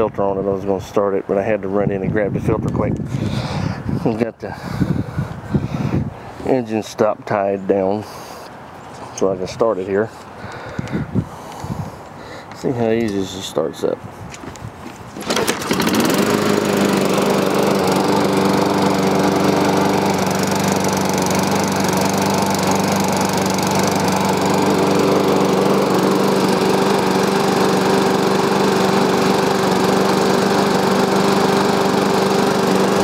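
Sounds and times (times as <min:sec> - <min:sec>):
lawn mower engine running: 0:14.8 - 0:33.0.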